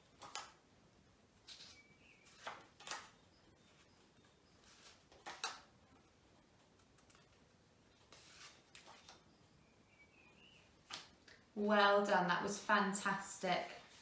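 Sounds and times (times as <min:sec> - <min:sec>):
paper rustling: 0:01.4 - 0:07.4, 0:08.0 - 0:09.2.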